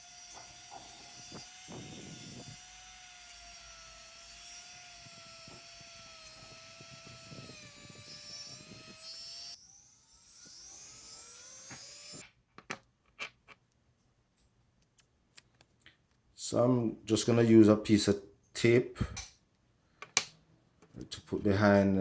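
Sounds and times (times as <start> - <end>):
rotary tool high whine: 0.0 - 12.2.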